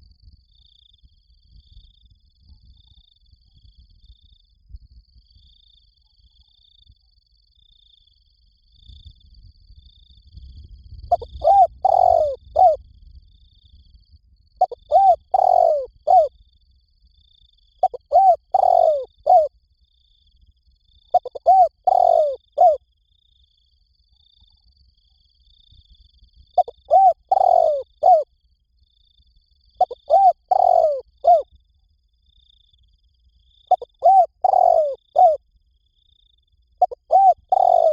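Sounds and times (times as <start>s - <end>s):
dove cooing: 11.1s - 12.8s, 14.6s - 16.3s, 17.8s - 19.5s, 21.1s - 22.8s, 26.6s - 28.2s, 29.8s - 31.4s, 33.7s - 35.4s, 36.8s - 37.9s.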